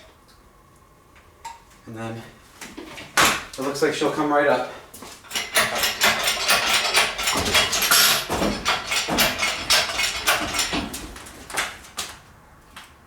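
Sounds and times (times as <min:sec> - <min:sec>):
metal engine parts clanking: 0:05.3 - 0:11.2.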